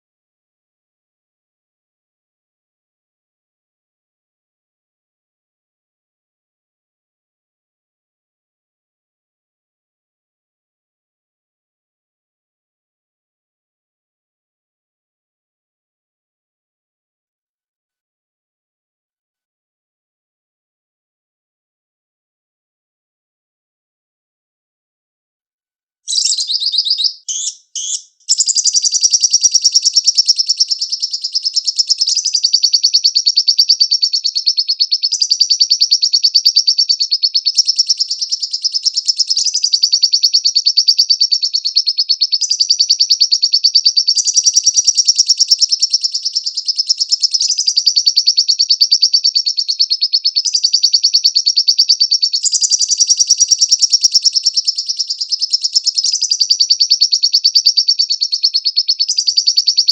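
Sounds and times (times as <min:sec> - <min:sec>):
lovebird short high calls: 0:26.1 - 0:36.2
lovebird chattering trill: 0:26.1 - 0:59.9.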